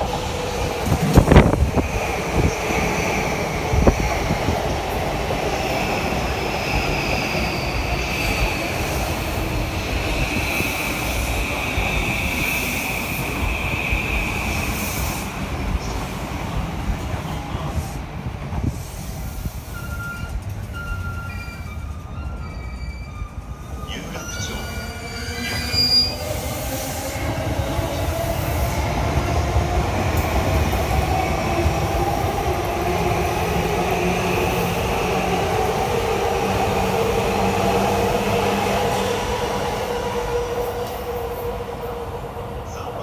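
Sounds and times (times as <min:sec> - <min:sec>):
train rail rumble: 0:00.0 - 0:43.0
wheels squealing: 0:19.7 - 0:26.5.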